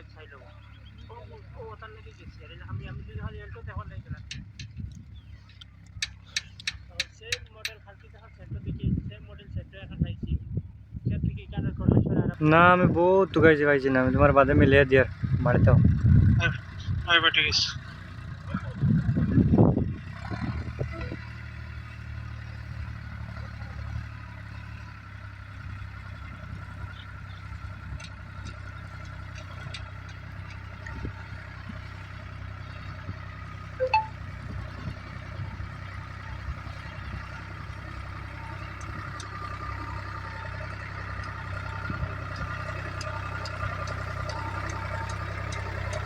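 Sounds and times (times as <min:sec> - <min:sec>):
vehicle engine idling: 0:00.0 - 0:46.0
ringing clink: 0:33.8 - 0:34.2.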